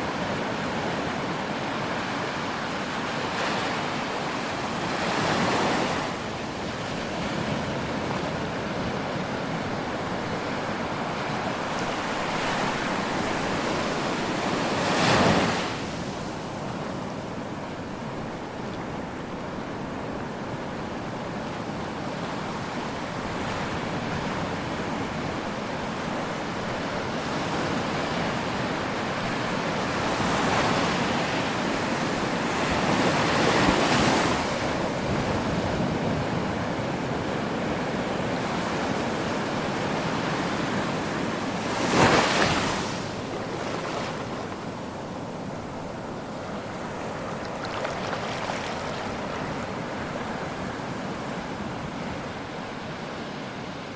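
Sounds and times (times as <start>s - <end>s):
surf washing: 22.5s - 53.9s.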